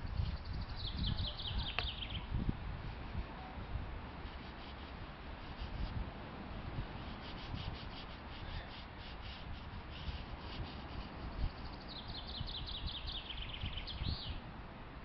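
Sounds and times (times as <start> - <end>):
bird song falling in pitch: 0.5 - 2.3.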